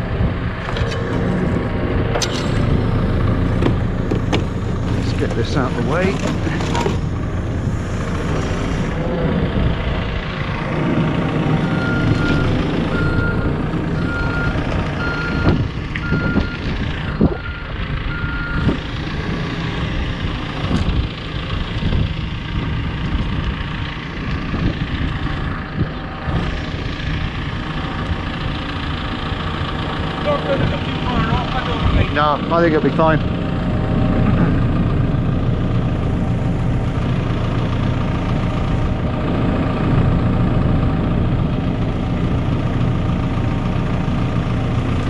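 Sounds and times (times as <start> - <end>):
diesel engine running: 0.0 - 45.0
reversing alarm beeps: 11.7 - 16.6, 17.2 - 18.8.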